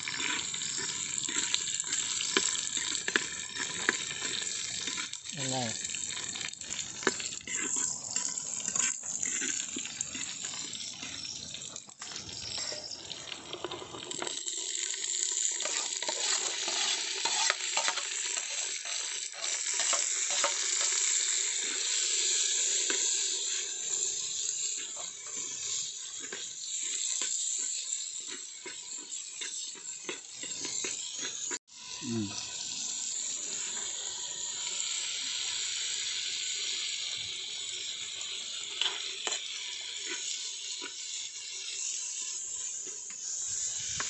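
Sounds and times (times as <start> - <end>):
spoon scraping a clay pot: 0.0 - 5.2, 5.8 - 14.4, 15.4 - 22.0, 22.8 - 31.6, 38.8 - 41.8
shallots sizzling in oil: 0.0 - 44.0.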